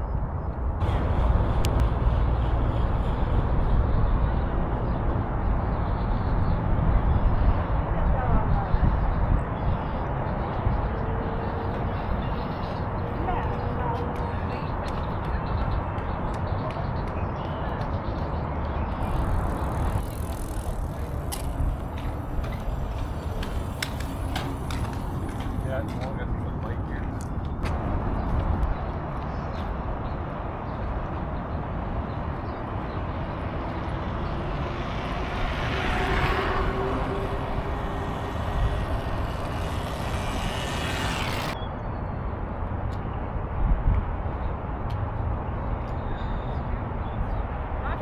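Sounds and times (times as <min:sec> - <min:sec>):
traffic rumble: 0:00.0 - 0:48.0
low rumble: 0:00.6 - 0:06.3, 0:33.1 - 0:41.6
passing hiss: 0:35.7 - 0:41.6.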